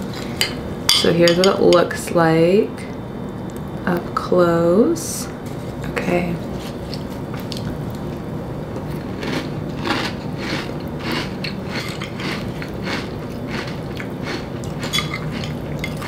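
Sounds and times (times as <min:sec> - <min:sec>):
person chewing crunchy cereal: 0:08.8 - 0:16.0.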